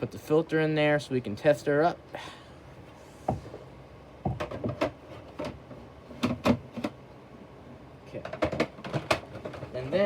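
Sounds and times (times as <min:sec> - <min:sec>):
plastic clicks and knocks: 0:04.2 - 0:07.0, 0:08.2 - 0:09.7.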